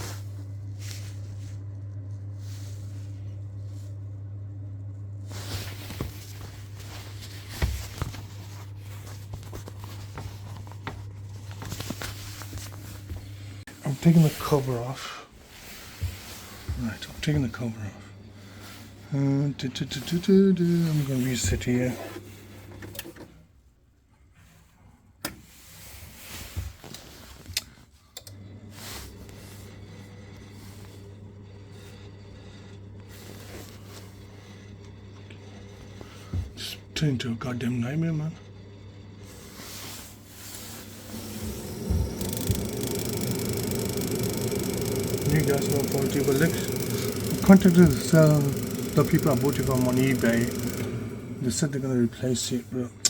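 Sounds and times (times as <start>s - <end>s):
steady low hum: 0.0s - 23.2s, 28.2s - 53.0s
footsteps: 5.6s - 14.5s, 15.4s - 17.6s, 40.1s - 45.8s.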